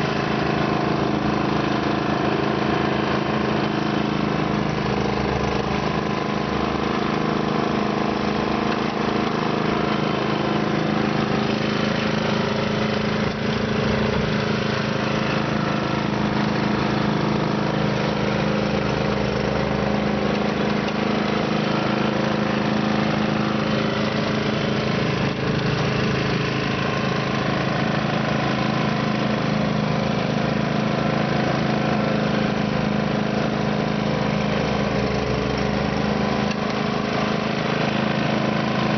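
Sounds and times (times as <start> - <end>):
snow blower engine running: 0.0 - 38.9.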